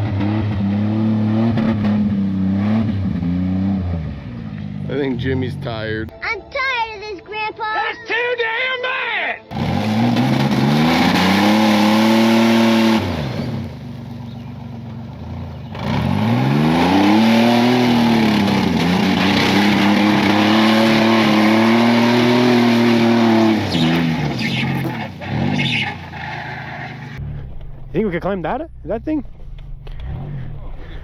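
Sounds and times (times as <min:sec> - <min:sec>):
engine revving hard: 0:00.0 - 0:05.1, 0:09.5 - 0:14.5, 0:15.1 - 0:27.2.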